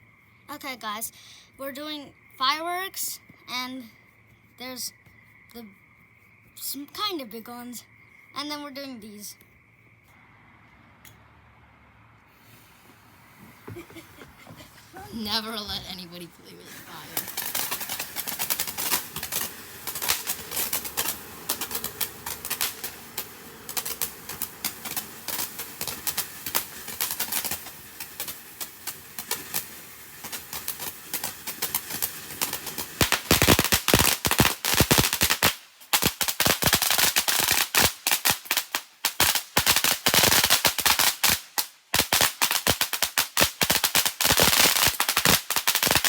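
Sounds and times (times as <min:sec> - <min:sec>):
fireworks popping and crackling: 0:12.4 - 0:46.0.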